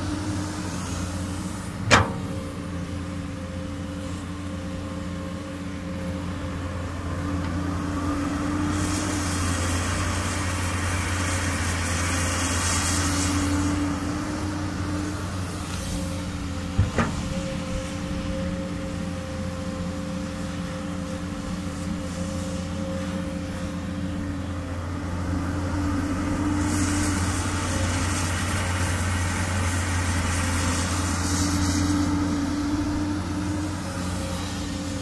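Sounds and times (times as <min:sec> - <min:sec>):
excavator diesel engine running: 0:00.0 - 0:35.0
hiss: 0:25.8 - 0:35.0.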